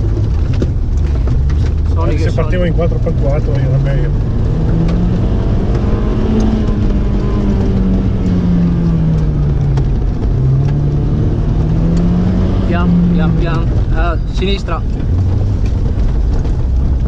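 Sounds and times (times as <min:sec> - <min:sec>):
sharp knocks and clicks: 0:00.0 - 0:02.0, 0:04.3 - 0:12.5
car engine revving: 0:00.0 - 0:17.0.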